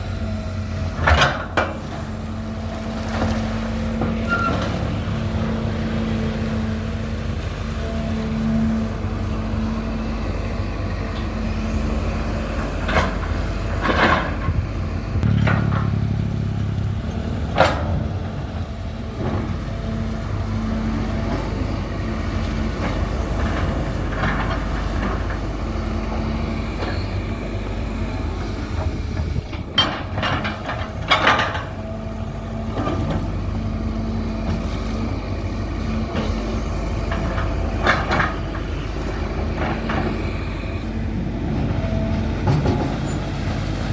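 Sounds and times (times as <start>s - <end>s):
excavator diesel engine running: 0.0s - 43.9s
metal clanks and squeaks: 4.1s - 4.9s.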